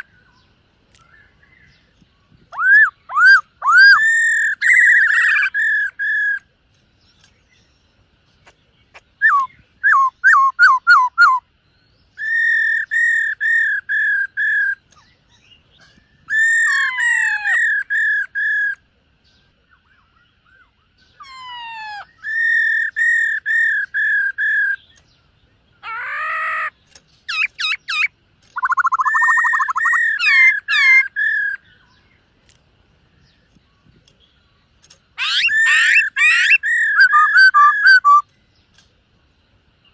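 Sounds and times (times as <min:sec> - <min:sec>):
bird singing whistled notes: 0:00.0 - 0:08.0, 0:08.6 - 0:32.3, 0:33.0 - 0:38.8.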